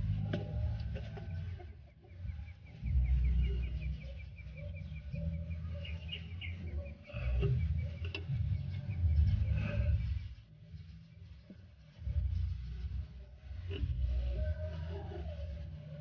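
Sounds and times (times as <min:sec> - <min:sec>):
low microphone rumble: 0:00.0 - 0:16.0
bird chirping rapidly: 0:01.3 - 0:13.5.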